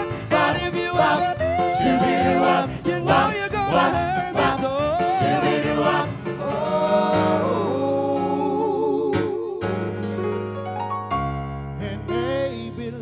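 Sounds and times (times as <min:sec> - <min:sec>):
lead voice singing with vibrato: 0:00.0 - 0:10.1
pop vocal ensemble with band: 0:00.0 - 0:10.2.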